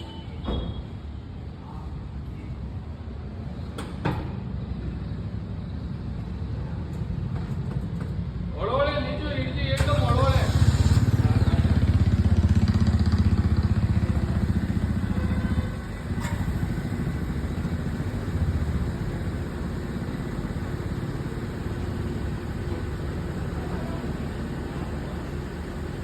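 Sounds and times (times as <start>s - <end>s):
vehicle engine throbbing: 9.8s - 26.0s.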